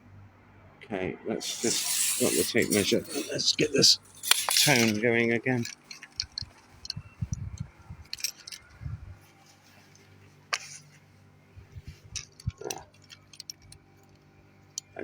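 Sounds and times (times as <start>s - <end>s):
low mains hum: 0.0s - 15.0s
equipment being handled: 1.4s - 7.2s, 8.1s - 11.0s.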